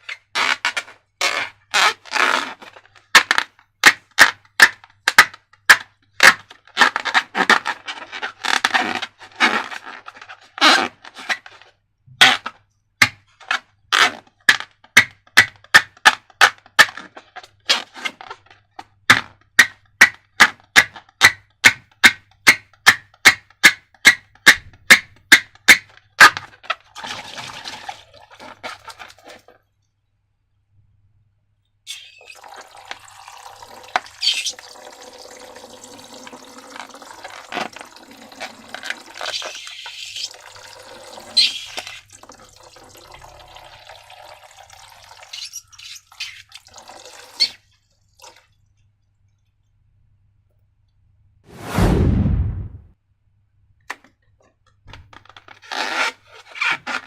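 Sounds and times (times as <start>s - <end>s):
slime stirred and poured: 26.8s - 29.9s, 31.9s - 48.8s.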